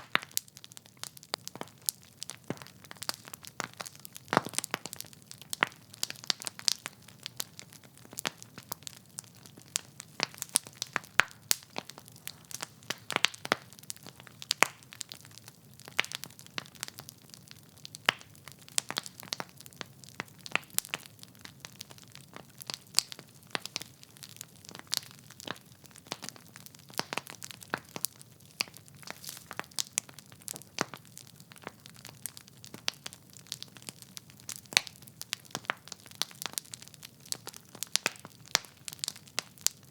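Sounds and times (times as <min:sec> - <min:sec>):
wood fire crackling: 0:00.0 - 0:39.9
faint low hiss: 0:28.3 - 0:30.1.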